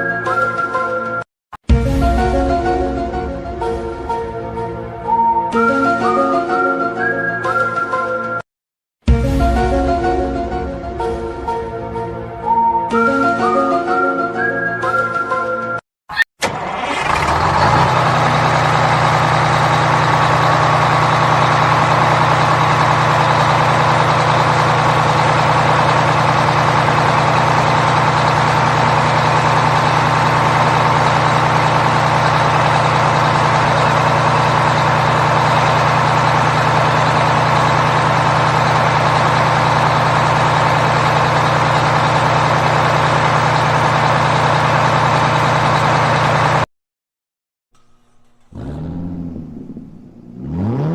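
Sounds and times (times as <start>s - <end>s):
heavy engine starting and idling: 16.1s - 46.7s, 47.8s - 50.9s.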